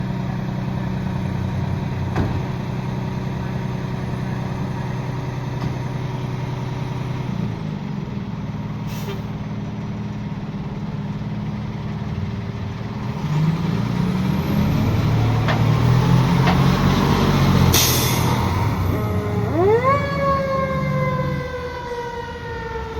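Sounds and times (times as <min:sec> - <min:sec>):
fire engine idling: 0:00.0 - 0:13.0, 0:17.8 - 0:22.9
air brakes hissing: 0:08.8 - 0:09.3, 0:17.6 - 0:18.9.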